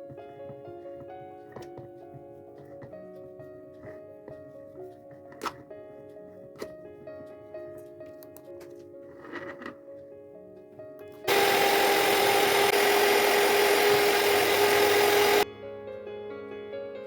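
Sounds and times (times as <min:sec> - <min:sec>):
quiet background music: 0:00.0 - 0:11.3, 0:15.4 - 0:17.0
kitchen appliance motor running: 0:11.3 - 0:15.4.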